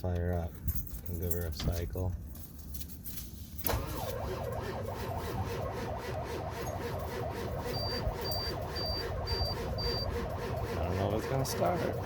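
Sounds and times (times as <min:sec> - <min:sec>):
starter cranking engine: 0:03.7 - 0:12.0.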